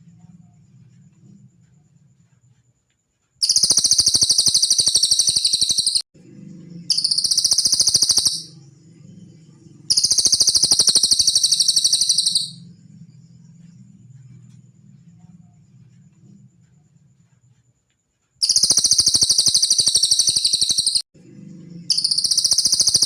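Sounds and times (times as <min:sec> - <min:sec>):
bird buzzy trills: 0:03.4 - 0:12.8, 0:18.4 - 0:23.0.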